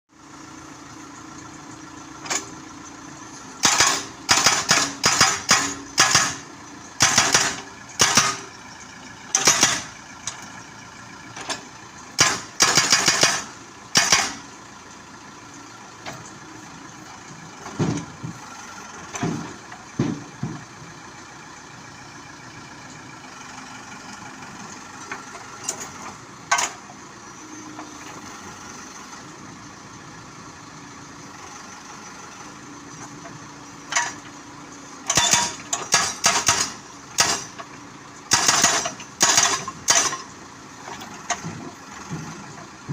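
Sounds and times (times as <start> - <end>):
diesel engine running: 0.1 - 42.9
hydraulic rock breaker hammering: 3.6 - 6.4, 7.0 - 8.5, 9.3 - 9.9, 12.2 - 14.4, 35.1 - 37.6, 38.3 - 40.3.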